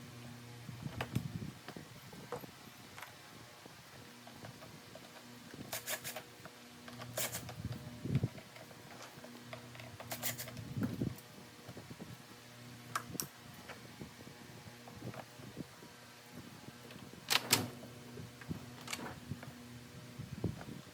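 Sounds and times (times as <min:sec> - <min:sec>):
low steady hum: 0:00.0 - 0:20.9
parts clicking and knocking: 0:04.2 - 0:11.0.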